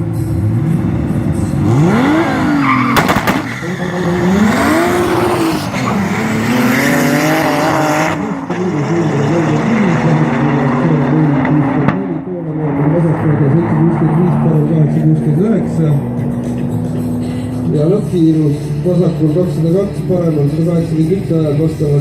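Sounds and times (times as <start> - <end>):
car engines revving: 0.0 - 22.0
sharp exhaust cracks: 1.8 - 6.0.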